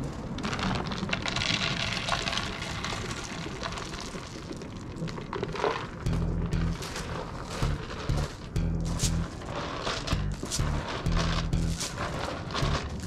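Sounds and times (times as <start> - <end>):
rain pattering: 0.0 - 13.0
music with deep beat: 6.1 - 9.4, 10.1 - 12.0, 12.6 - 13.0.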